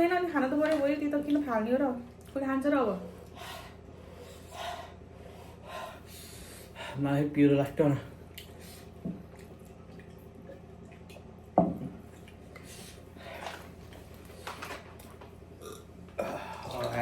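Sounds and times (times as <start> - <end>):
chewing and lip smacking: 9.2 - 11.4, 12.1 - 12.8.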